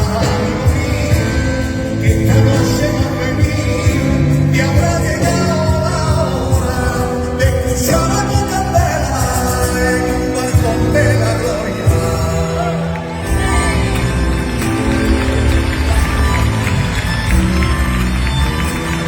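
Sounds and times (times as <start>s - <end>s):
man singing: 0.0s - 15.2s
band playing over a beat: 0.0s - 19.0s.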